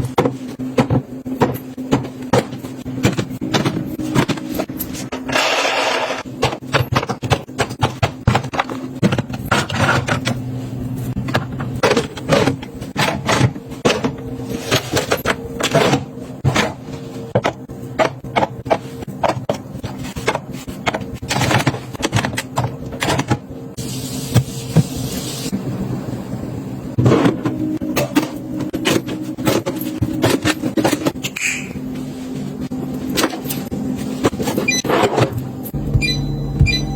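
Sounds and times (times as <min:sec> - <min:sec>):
packages clicking and knocking: 0:00.0 - 0:05.4, 0:06.2 - 0:10.4, 0:11.2 - 0:23.5, 0:27.0 - 0:31.4.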